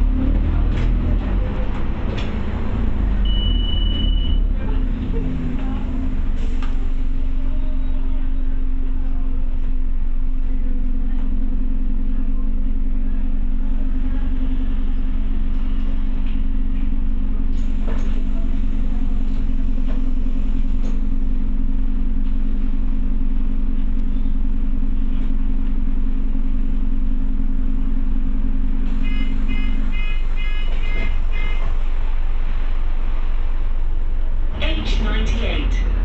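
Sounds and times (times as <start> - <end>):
bus engine rumble: 0.0 - 36.0
steady hum: 0.0 - 36.0
short high electronic beeps: 3.3 - 4.4.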